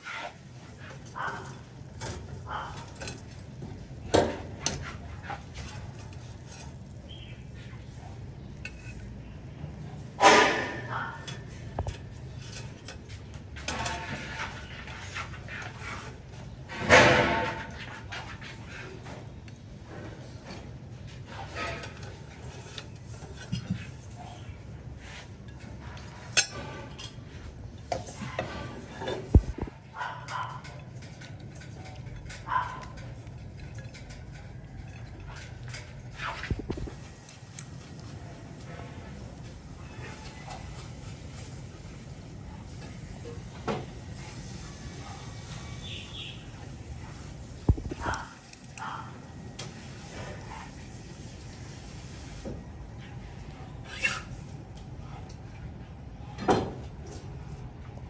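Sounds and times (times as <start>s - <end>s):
utensils clinking against dishes: 0.7s - 7.6s, 8.6s - 9.3s, 10.1s - 14.7s, 21.3s - 24.4s, 25.0s - 41.5s
utensils clinking and knocking: 30.3s - 37.0s.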